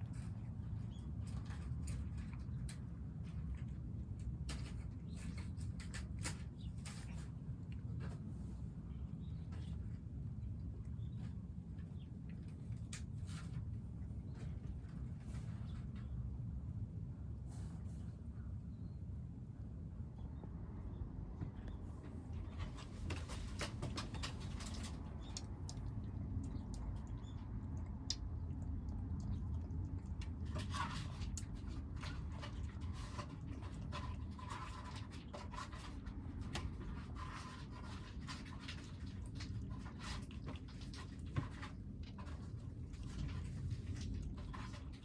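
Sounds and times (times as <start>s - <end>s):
steady low rumble: 7.5s - 34.4s
kittens crunching food: 22.3s - 45.0s.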